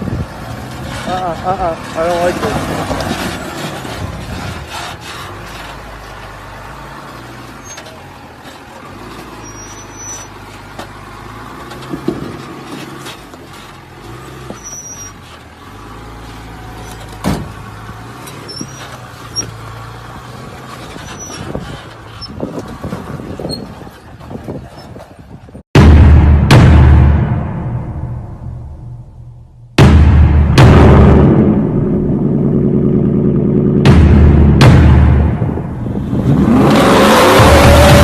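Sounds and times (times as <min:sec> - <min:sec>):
truck engine running: 0:00.0 - 0:38.0
short high squeaks: 0:07.5 - 0:10.4, 0:12.6 - 0:15.4, 0:16.3 - 0:17.2, 0:18.2 - 0:19.7, 0:20.6 - 0:25.1
sharp knock: 0:25.8 - 0:31.9, 0:33.9 - 0:35.7.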